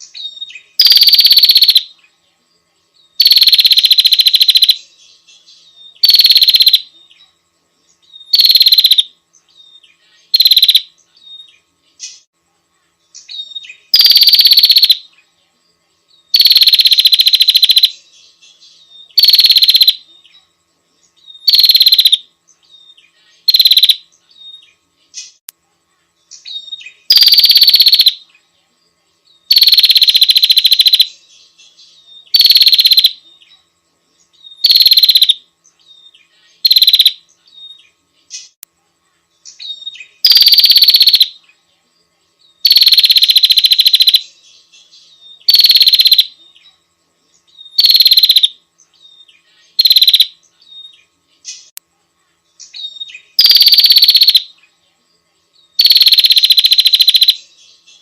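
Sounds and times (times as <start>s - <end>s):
bird rattling trills: 49.8s - 50.3s, 53.4s - 54.4s.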